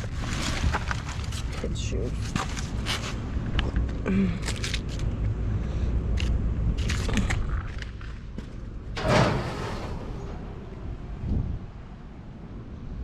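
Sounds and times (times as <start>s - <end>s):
low rumble: 8.6s - 13.0s
trash rustling and knocking: 8.9s - 11.8s.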